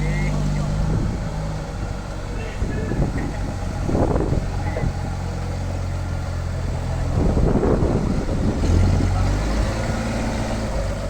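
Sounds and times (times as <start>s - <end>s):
heavy engine running: 0.0s - 11.0s.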